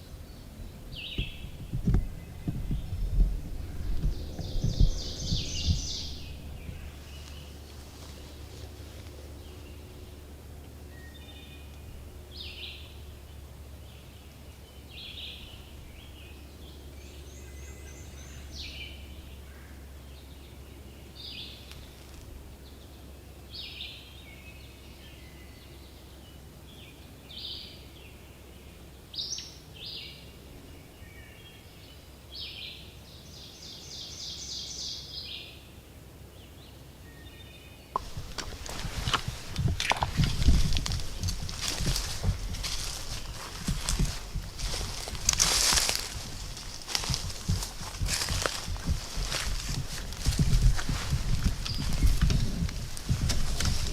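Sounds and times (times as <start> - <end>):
steady low rumble: 0.0 - 24.9, 38.0 - 53.9
songbirds calling and singing: 0.0 - 53.9.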